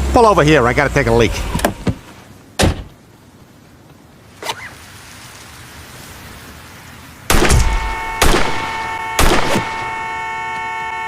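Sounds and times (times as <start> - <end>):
car horn sounding: 7.8 - 11.0.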